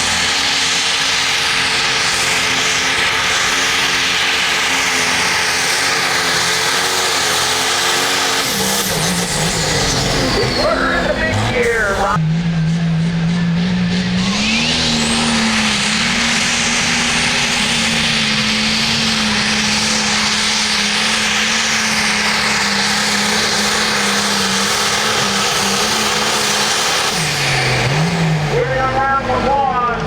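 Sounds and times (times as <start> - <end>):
loud rushing noise: 0.0 - 13.2
engine at full throttle: 0.0 - 30.0.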